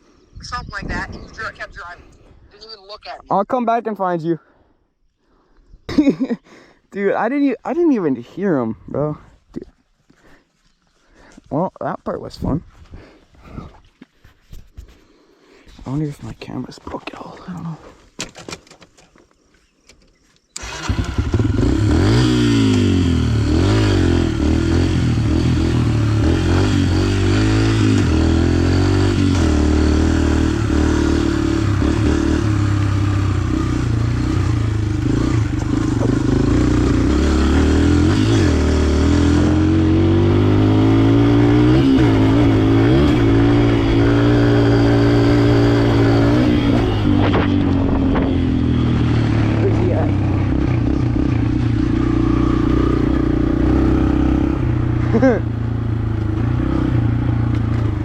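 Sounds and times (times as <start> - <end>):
dirt bike engine revving: 20.6 - 58.0.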